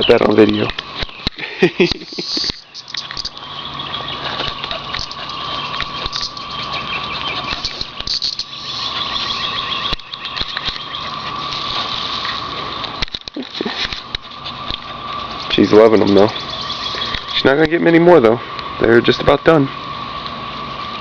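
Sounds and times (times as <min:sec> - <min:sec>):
cicadas droning: 0:00.0 - 0:21.0
scattered clicks and rustles: 0:00.3 - 0:03.5, 0:04.2 - 0:17.8.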